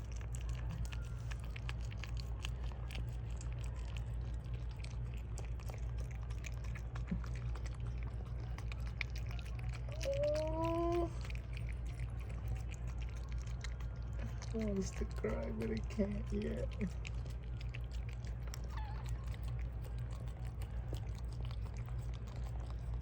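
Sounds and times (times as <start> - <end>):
dog licking puppy: 0.0 - 23.0
steady low hum: 0.0 - 23.0
puppy whine: 5.4 - 14.6, 17.8 - 23.0.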